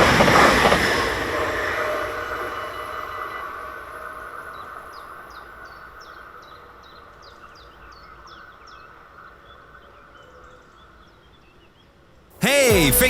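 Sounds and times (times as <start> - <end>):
passing train running noise: 0.0 - 4.4.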